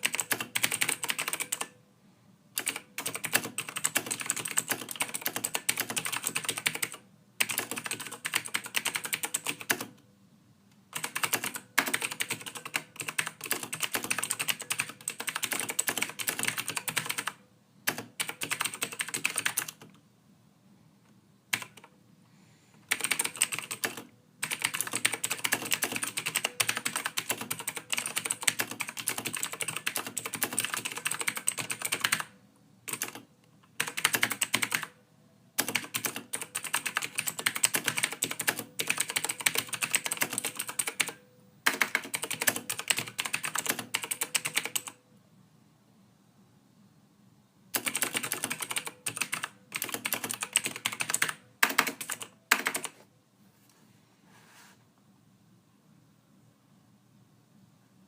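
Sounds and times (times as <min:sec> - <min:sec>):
typing on computer keyboard: 0:00.0 - 0:01.8, 0:02.6 - 0:10.0, 0:10.9 - 0:20.0, 0:21.5 - 0:21.9, 0:22.9 - 0:32.3, 0:32.9 - 0:35.0, 0:35.6 - 0:45.0, 0:47.7 - 0:53.0.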